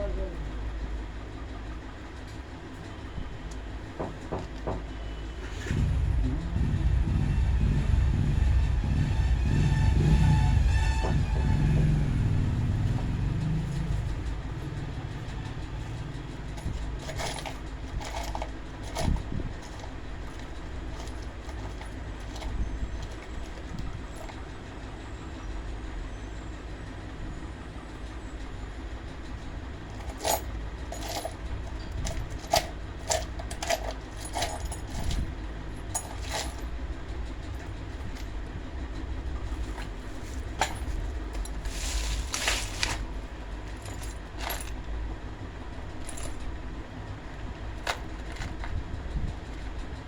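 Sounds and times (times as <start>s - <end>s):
low hum: 5.5s - 24.3s
metal parts and tools clinking: 10.3s - 24.5s, 29.8s - 38.4s, 39.4s - 45.0s, 45.9s - 46.6s, 47.7s - 48.8s.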